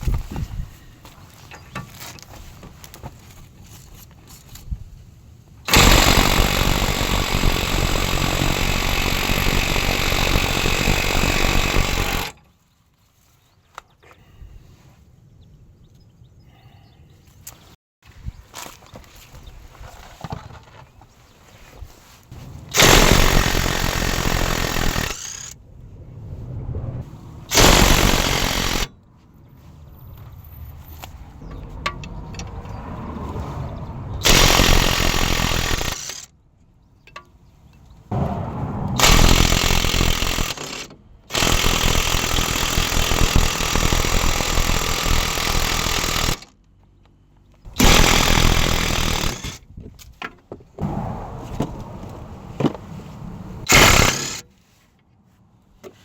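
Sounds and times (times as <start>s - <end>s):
impact wrench hammering: 5.7s - 12.4s, 22.7s - 25.5s, 27.5s - 28.9s, 34.2s - 36.3s, 39.0s - 46.5s, 47.7s - 49.6s, 53.7s - 54.4s.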